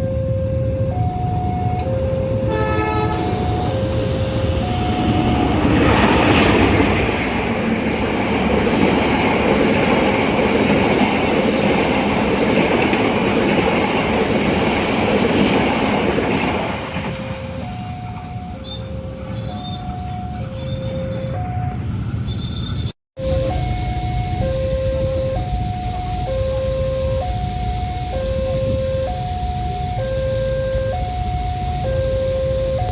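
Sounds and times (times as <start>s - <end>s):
train rumbling past: 0.0s - 32.9s.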